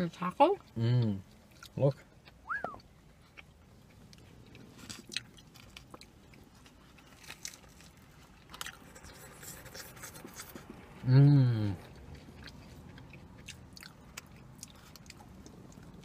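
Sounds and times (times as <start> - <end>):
biting and chewing food: 0.6 - 11.0, 11.7 - 16.0.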